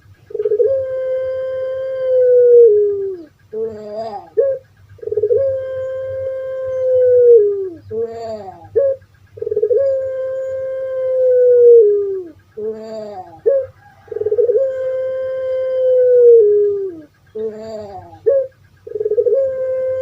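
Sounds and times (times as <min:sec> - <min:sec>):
dove cooing: 0:00.0 - 0:20.0.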